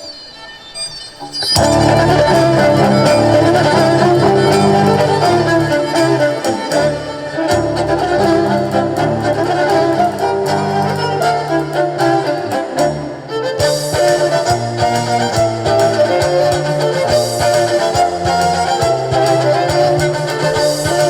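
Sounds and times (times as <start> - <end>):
live band music: 1.3 - 21.0
sustained bass line: 1.6 - 12.0.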